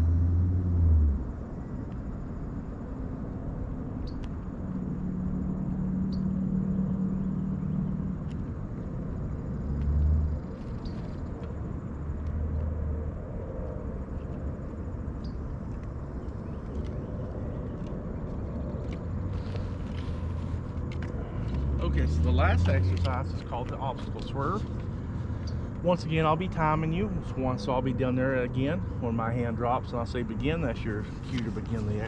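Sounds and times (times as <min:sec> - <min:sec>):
motorcycle engine rumbling: 0:18.7 - 0:32.0.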